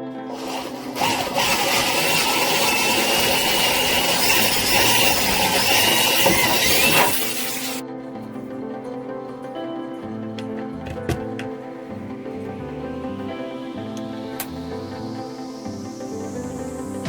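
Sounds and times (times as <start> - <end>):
power saw cutting wood: 0.0 - 7.9.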